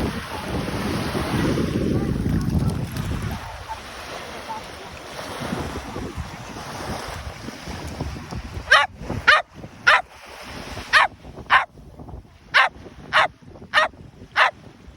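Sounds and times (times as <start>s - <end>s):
surf: 0.0s - 14.6s
wind: 0.0s - 14.9s
dog yipping: 8.7s - 10.1s, 10.9s - 11.7s, 12.6s - 14.5s.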